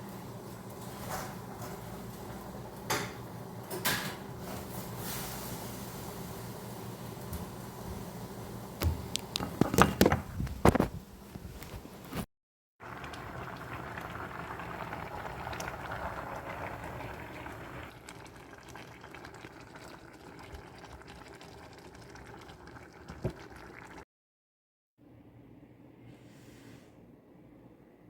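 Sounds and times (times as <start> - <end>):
liquid boiling in pot: 12.8 - 24.0.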